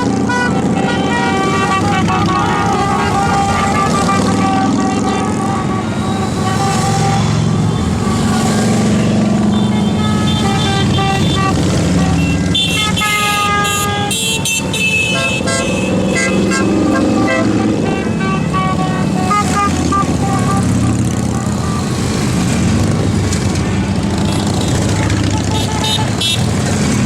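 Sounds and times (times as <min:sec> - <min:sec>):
horns tooting: 0:00.0 - 0:27.0
motorcycle engines rumbling: 0:00.0 - 0:27.0.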